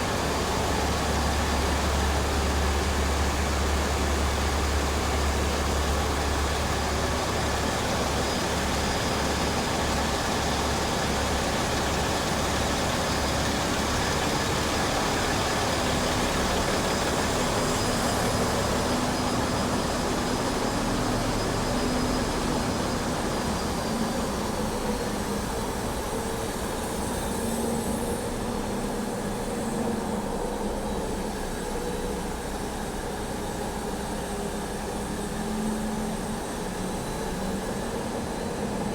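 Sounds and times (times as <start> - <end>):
diesel engines droning: 0.0 - 38.9.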